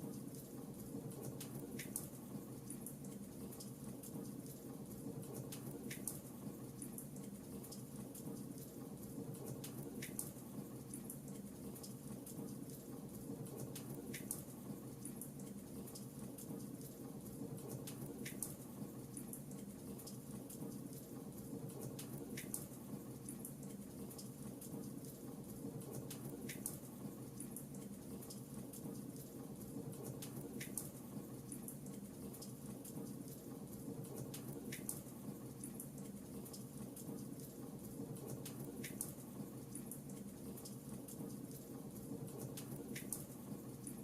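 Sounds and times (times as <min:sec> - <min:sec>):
fireplace fire crackling: 0:00.0 - 0:44.0.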